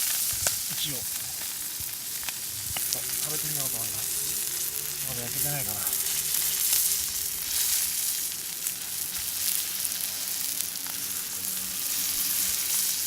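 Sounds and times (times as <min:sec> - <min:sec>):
fish sizzling on a griddle: 0:00.0 - 0:13.0.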